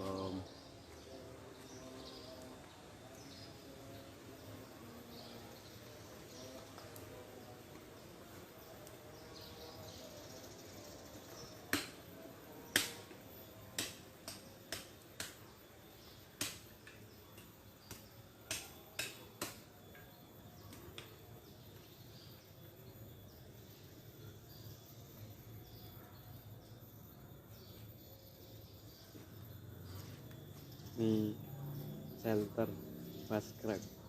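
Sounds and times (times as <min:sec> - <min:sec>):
faint outdoor background: 0:00.0 - 0:34.0
sharp snaps or knocks: 0:11.7 - 0:12.0, 0:12.7 - 0:13.2, 0:13.8 - 0:15.5, 0:16.4 - 0:19.7.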